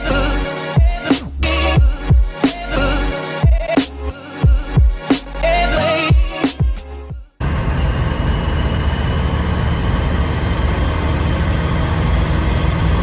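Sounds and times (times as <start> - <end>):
diesel engine running: 7.4 - 13.0
high turbo whine: 7.4 - 13.0.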